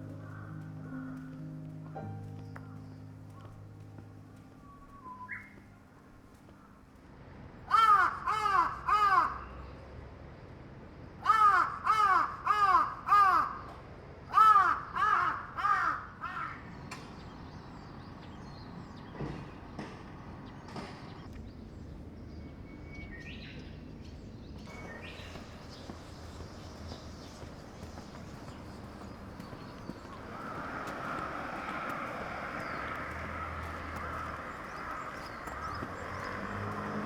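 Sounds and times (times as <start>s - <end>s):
crow cawing: 0.1s - 2.0s, 7.7s - 9.5s, 11.2s - 13.7s, 14.3s - 16.8s, 25.1s - 37.0s.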